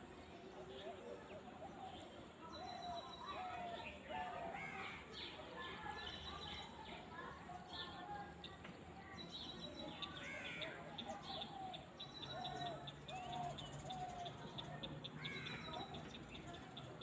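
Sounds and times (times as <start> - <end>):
birds calling: 10.1 - 17.0.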